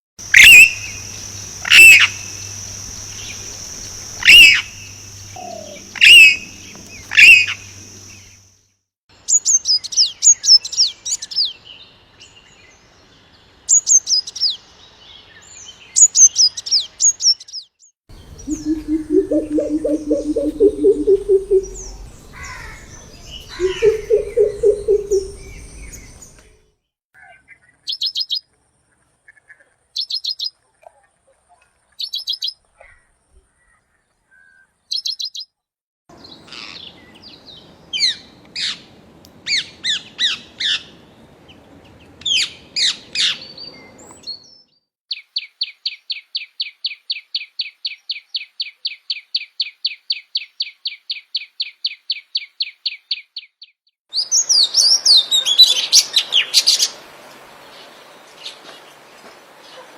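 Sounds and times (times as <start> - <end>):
high bird trills: 0.3 - 1.0, 4.2 - 7.7, 18.3 - 25.7
low hooting bird call: 5.3 - 7.6, 18.3 - 25.6
bird chirps: 18.2 - 26.4
downward-sweeping bird whistles: 18.4 - 21.9, 23.5 - 25.6
high clicking bird notes: 18.5 - 21.9, 23.6 - 25.4.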